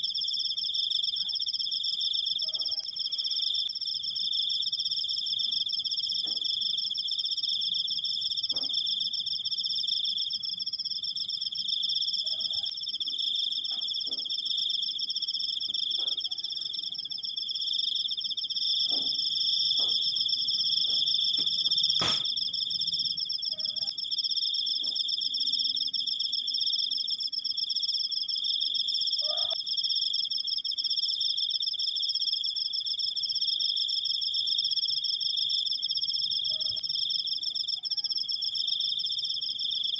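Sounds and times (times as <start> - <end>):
cricket trilling: 0.0 - 39.9
sharp click: 22.0 - 22.3.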